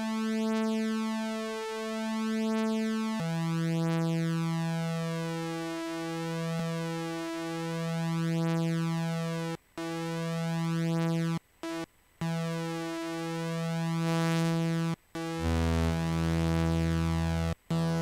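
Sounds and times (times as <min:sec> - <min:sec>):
synthesizer long held notes: 0:12.2 - 0:18.0
low synthesizer note: 0:15.2 - 0:18.0.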